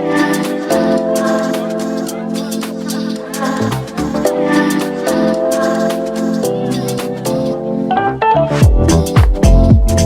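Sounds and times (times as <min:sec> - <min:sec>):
held keyboard chords: 0:00.0 - 0:10.0
deep kick drum beat: 0:08.6 - 0:10.0.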